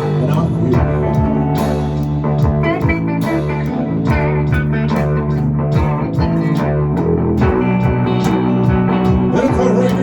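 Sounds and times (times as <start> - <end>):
bass guitar line: 0.0 - 10.0
guitar notes: 0.0 - 10.0.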